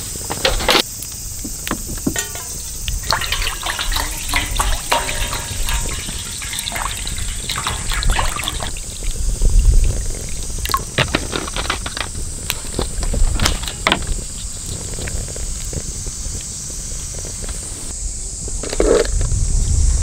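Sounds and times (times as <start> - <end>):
liquid pouring and sloshing: 1.4 - 11.9.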